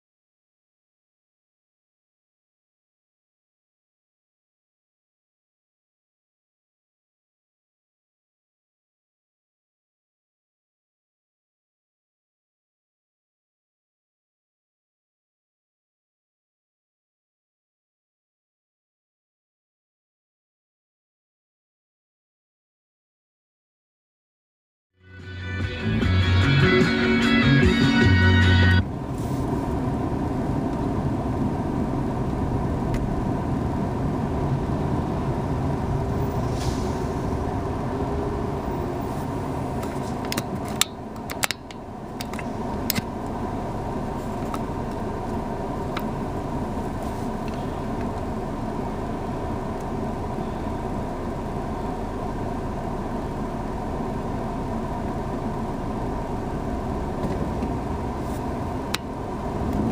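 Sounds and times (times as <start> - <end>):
engine and road rumble: 25.0 - 59.9.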